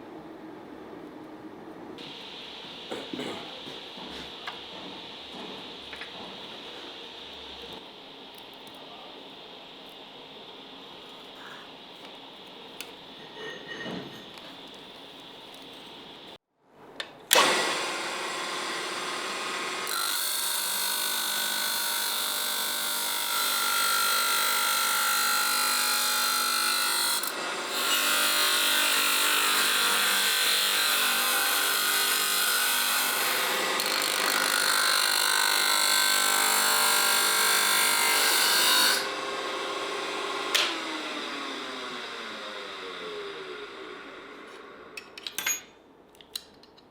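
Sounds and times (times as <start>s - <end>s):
electric power tool running: 17.3s - 22.2s, 39.0s - 45.0s.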